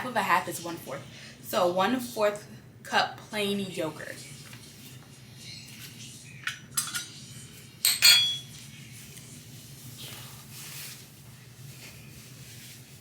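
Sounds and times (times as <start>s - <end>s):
utensils and dishware clinking: 6.4s - 8.6s.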